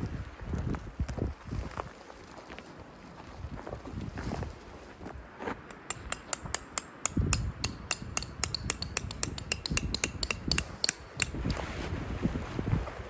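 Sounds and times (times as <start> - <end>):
low wind rumble: 0.0 - 1.9, 3.4 - 13.0
tent fabric snapping in wind: 11.2 - 13.0.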